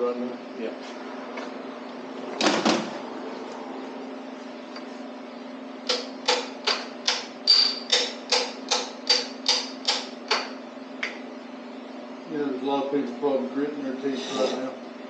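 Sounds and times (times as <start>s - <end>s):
hammer tapping on metal: 5.9s - 10.5s.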